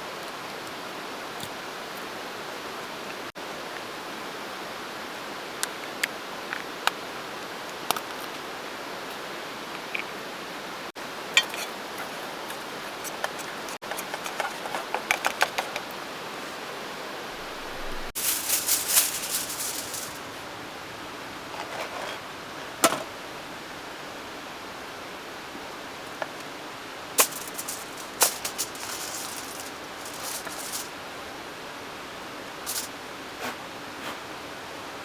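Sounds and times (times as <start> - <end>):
steady hiss: 8.6 - 35.0
foil crinkling: 17.9 - 20.4, 27.2 - 30.9, 32.7 - 32.9.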